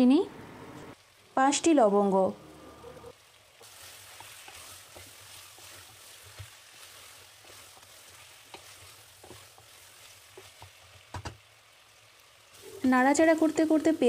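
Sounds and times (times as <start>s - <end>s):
chicken frying in oil: 1.0s - 14.0s
wooden spatula knocking pot: 10.3s - 11.4s.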